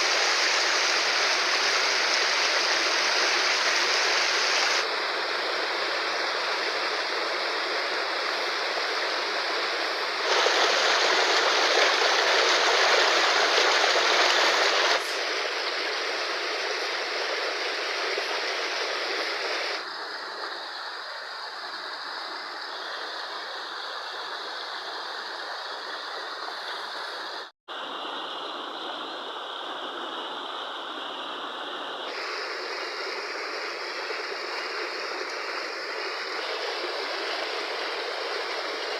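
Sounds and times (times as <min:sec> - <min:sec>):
river water rushing: 0:00.0 - 0:19.9, 0:27.7 - 0:38.9.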